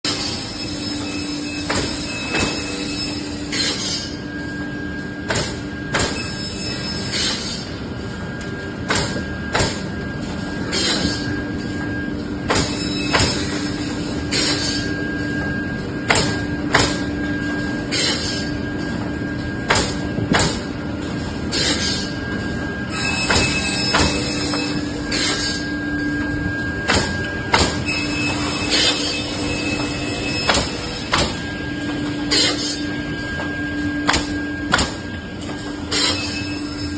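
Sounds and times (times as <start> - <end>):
sharp machine strokes: 0.1 - 4.4, 5.4 - 7.8, 12.4 - 15.3, 17.7 - 18.6, 22.8 - 26.2, 27.8 - 35.1, 35.8 - 36.9
machine humming: 0.1 - 36.9.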